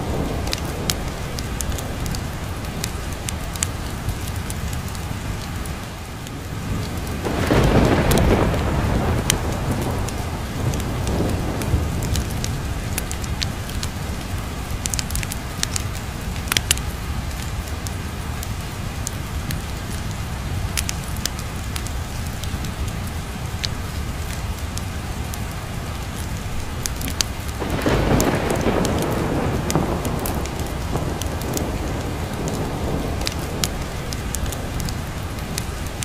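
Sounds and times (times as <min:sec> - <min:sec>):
heavy rain: 0:00.0 - 0:36.0
thunder rolling: 0:06.7 - 0:15.0, 0:27.0 - 0:36.0.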